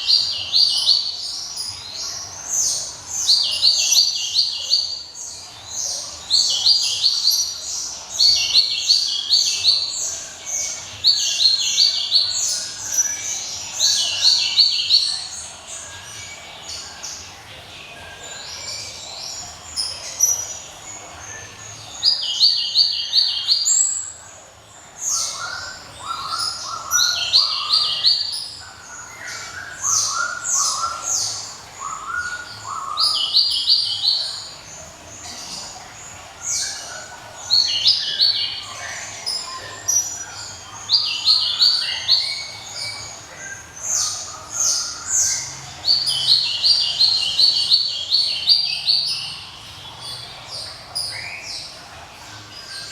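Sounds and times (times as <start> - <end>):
songbird singing: 0.0 - 52.9.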